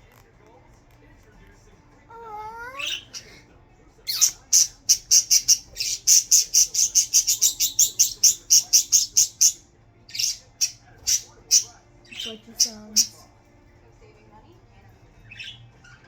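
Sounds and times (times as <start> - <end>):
budgie chirping: 4.1 - 13.2.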